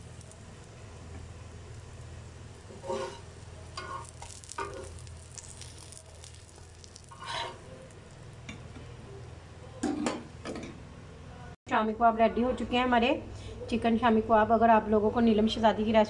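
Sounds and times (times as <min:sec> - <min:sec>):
kababs sizzling in oil: 0:00.0 - 0:08.8
spatula scraping a pan: 0:02.6 - 0:06.0, 0:07.0 - 0:07.7.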